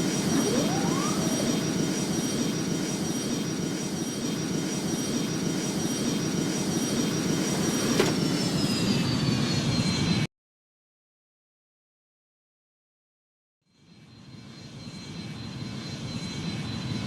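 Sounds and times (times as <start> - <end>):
jet engines whining: 0.0 - 10.3.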